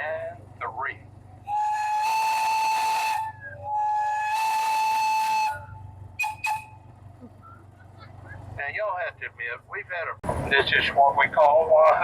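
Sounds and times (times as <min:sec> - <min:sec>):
train whistle blasts: 0:01.5 - 0:06.8.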